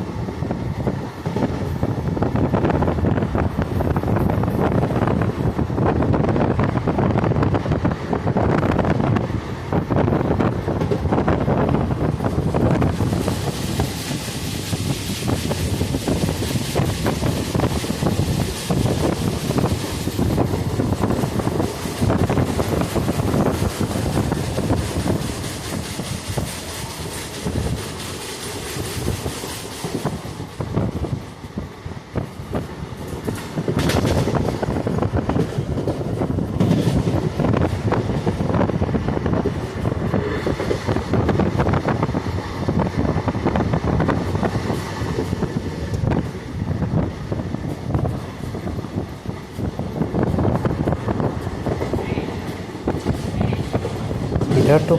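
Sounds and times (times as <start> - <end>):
train rumble and air rush: 0.0 - 54.9
wheels clattering over rail joints: 32.2 - 42.1, 47.6 - 54.9.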